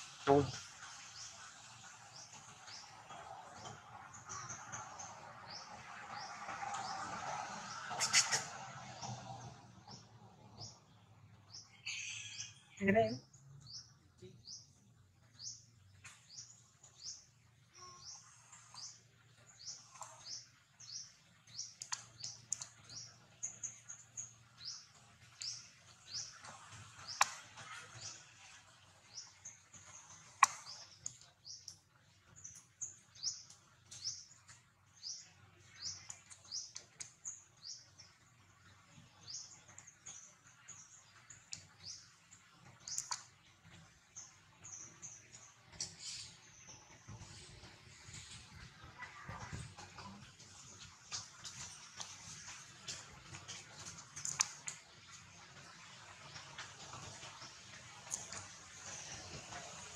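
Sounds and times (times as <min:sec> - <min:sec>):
small bird chirping: 0:07.9 - 0:09.2, 0:11.5 - 0:43.4.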